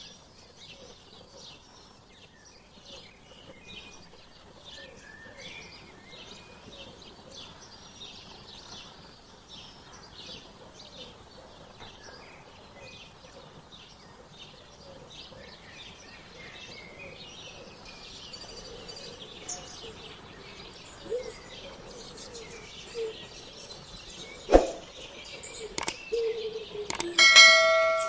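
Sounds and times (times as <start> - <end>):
songbirds chirping: 16.8 - 28.0.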